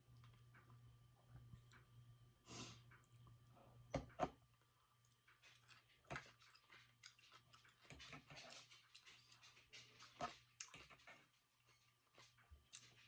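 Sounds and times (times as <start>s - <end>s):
faint electrical hum: 0.0s - 13.0s
chewing clicks and smacks: 5.0s - 13.0s.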